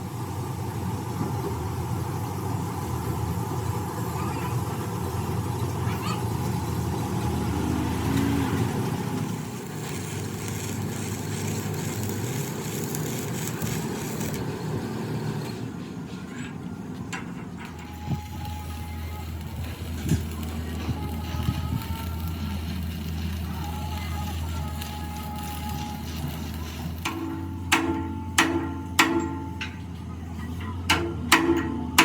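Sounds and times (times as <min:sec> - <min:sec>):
engine humming: 0:00.0 - 0:32.0
voices in background: 0:03.6 - 0:07.6, 0:15.4 - 0:27.7, 0:29.5 - 0:31.9.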